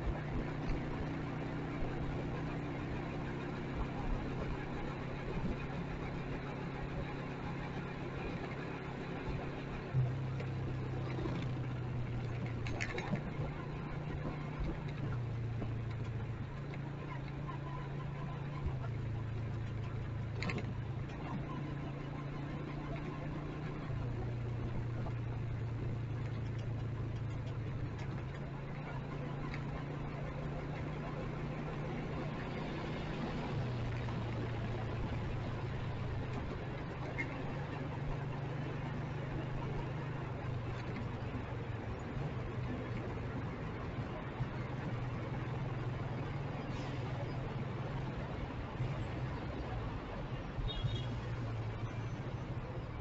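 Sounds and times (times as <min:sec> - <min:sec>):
motorcycle engine idling: 0:00.0 - 0:44.0, 0:50.4 - 0:53.0
road and wind noise: 0:00.0 - 0:53.0.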